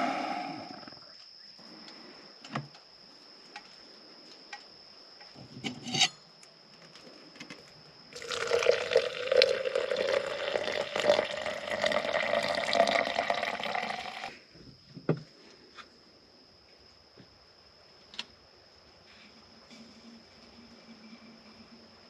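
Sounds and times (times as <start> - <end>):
water pouring or bubbling: 8.2 - 14.3.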